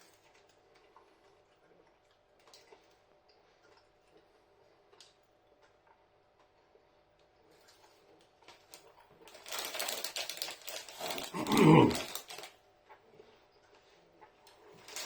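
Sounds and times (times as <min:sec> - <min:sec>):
chocolate crunching in mouth: 0:09.3 - 0:12.6
closed-mouth mmm: 0:11.3 - 0:12.1.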